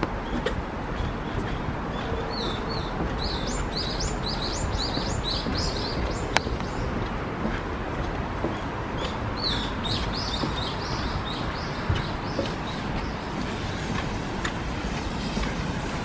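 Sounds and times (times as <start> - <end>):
songbird high chirps: 2.0 - 7.0, 9.0 - 13.2.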